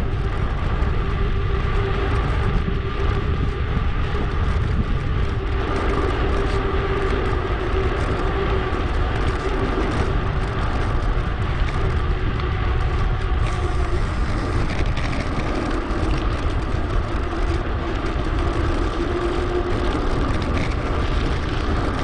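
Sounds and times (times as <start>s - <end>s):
mountain bike rolling: 0.0s - 22.0s
wind rush on microphone: 0.0s - 22.0s.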